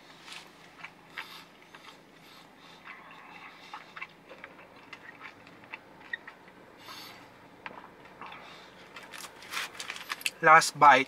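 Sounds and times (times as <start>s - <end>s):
chewing with mouth closed: 0.3s - 10.4s.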